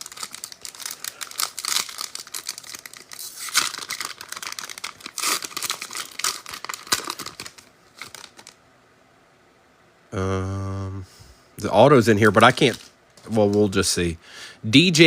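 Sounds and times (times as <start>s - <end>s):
foil wrapper crinkling: 0.0s - 8.6s, 12.4s - 13.8s.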